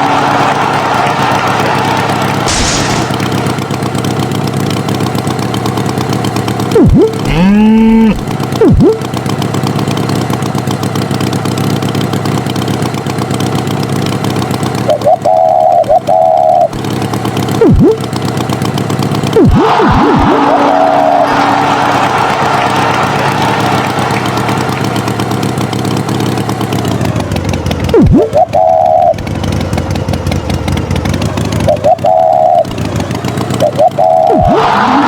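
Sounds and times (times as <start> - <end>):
cartoon tractor engine running: 0.0 - 35.0
boing sound effects: 6.7 - 9.1, 17.6 - 18.0, 19.4 - 21.6, 27.9 - 29.2, 31.6 - 32.7, 33.5 - 35.0
warbling tone: 6.7 - 9.1, 17.6 - 18.0, 27.9 - 29.2, 33.6 - 35.0.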